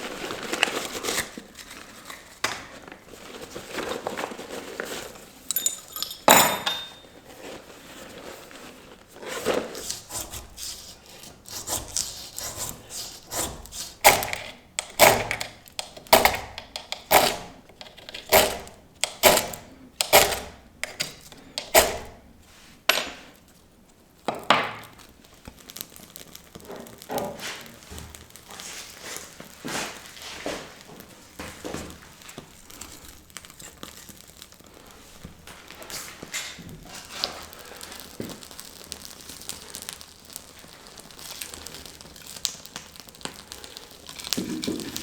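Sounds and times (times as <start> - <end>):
soft rustling and crackling: 0.0 - 6.3, 6.9 - 14.8, 22.2 - 45.0
axe chopping firewood: 13.3 - 17.6, 18.3 - 22.2.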